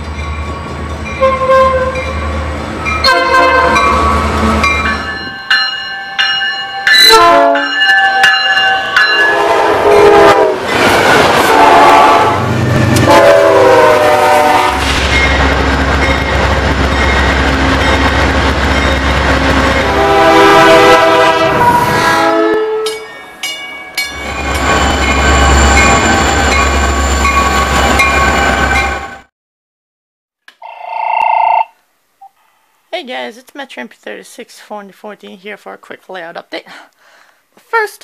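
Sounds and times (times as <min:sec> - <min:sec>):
train rumble: 0:00.0 - 0:29.2
locomotive air horn: 0:01.2 - 0:02.0, 0:03.0 - 0:04.7, 0:07.0 - 0:07.8, 0:09.3 - 0:10.6, 0:11.5 - 0:15.0, 0:19.8 - 0:22.9.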